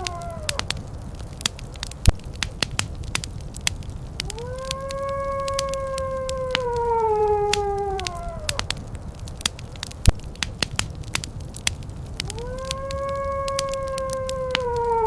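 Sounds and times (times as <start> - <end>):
dog howling: 0.0 - 1.0, 4.2 - 8.8, 12.2 - 15.0
wood fire crackling: 0.0 - 15.0.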